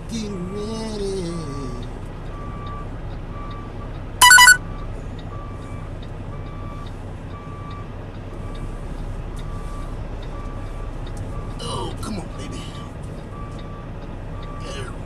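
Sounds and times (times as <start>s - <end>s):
truck engine running: 0.0s - 15.0s
loud high-pitched tone: 4.2s - 4.6s
reversing alarm beeping: 4.2s - 4.6s.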